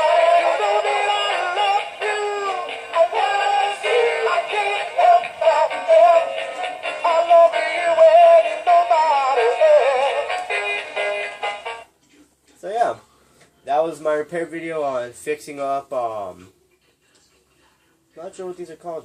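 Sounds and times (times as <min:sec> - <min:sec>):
toy speaker song: 0:00.0 - 0:11.8.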